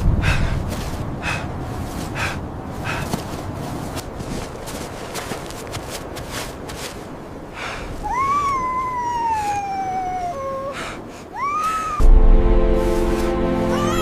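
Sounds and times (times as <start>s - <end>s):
footsteps crunching in snow: 0.6s - 7.2s, 12.5s - 14.0s.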